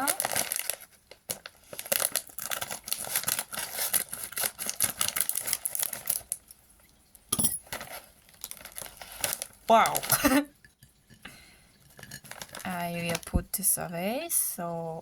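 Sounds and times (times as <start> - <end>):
snack bag crackling: 0.0 - 6.6, 7.6 - 10.2, 12.2 - 13.4.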